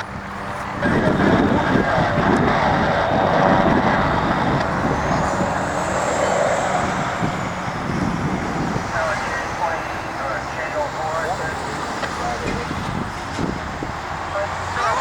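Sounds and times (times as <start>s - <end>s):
helicopter flying overhead: 0.0s - 15.0s.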